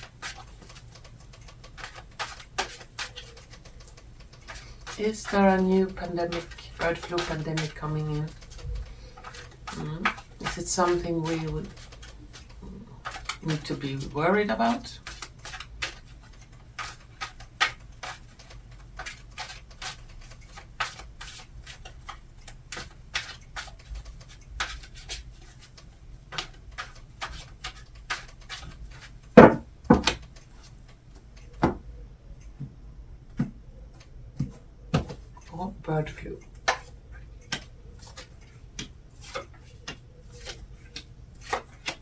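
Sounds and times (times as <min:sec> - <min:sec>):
cards being shuffled: 0:00.0 - 0:31.7, 0:33.3 - 0:42.0
loud knocks: 0:29.4 - 0:30.2.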